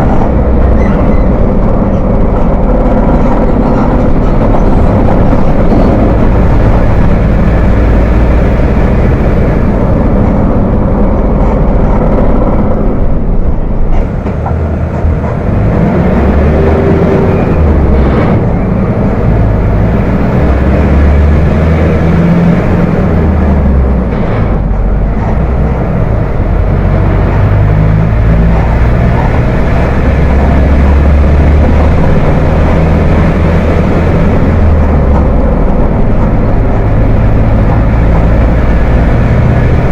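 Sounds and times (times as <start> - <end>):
diesel bus engine rumbling: 0.0 - 39.9.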